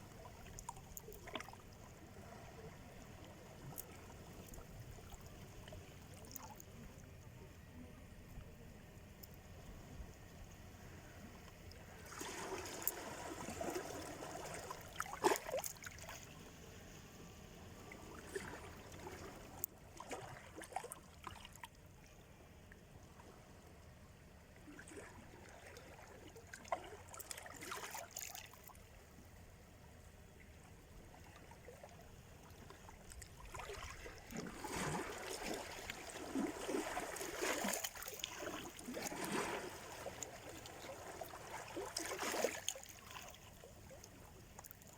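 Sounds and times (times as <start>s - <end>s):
small waves washing on shore: 9.5s - 21.6s, 32.3s - 44.9s.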